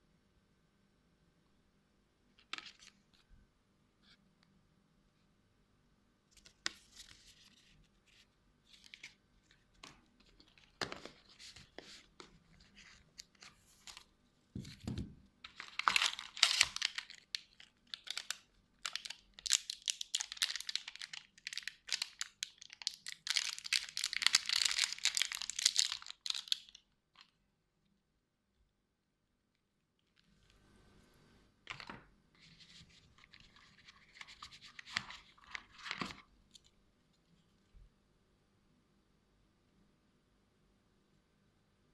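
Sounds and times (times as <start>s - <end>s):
plastic and paper crinkling: 6.4s - 27.3s, 31.7s - 36.7s.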